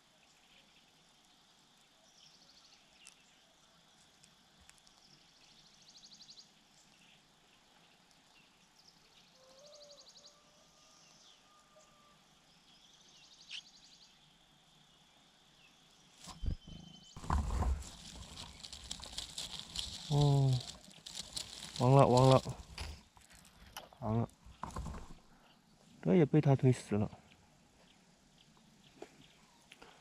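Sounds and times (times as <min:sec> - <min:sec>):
small animal trilling: 0:16.2 - 0:23.4.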